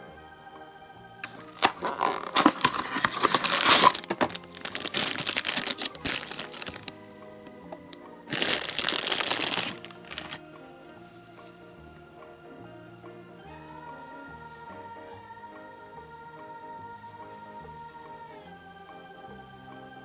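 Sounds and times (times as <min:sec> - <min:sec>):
soft background music: 0:00.0 - 0:20.0
packaging crinkling: 0:01.2 - 0:07.0, 0:07.7 - 0:10.5.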